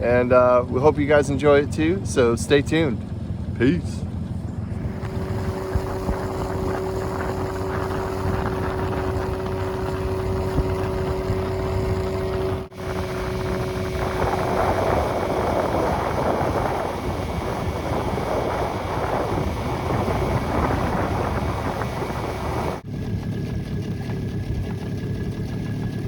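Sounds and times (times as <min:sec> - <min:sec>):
boat motor running: 0:00.0 - 0:26.0
wind rushing over microphone: 0:04.7 - 0:22.8.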